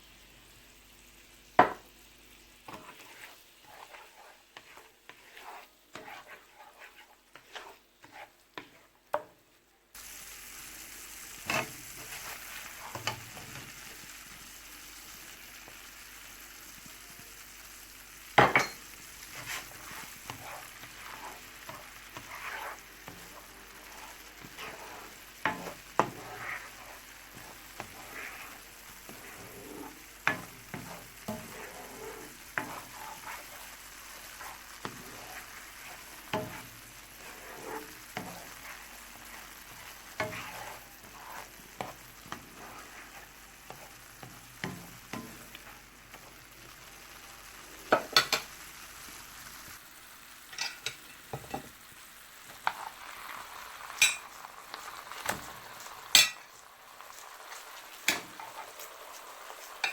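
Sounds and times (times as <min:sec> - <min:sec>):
food sizzling in a pan: 0:00.0 - 0:59.9
utensil tapping and scraping pan: 0:01.6 - 0:01.8, 0:02.7 - 0:09.4, 0:11.4 - 0:13.7, 0:18.4 - 0:46.4, 0:47.9 - 0:48.6, 0:50.5 - 0:51.8, 0:52.5 - 0:53.0, 0:53.9 - 0:56.6, 0:58.0 - 0:58.9, 0:59.5 - 0:59.9.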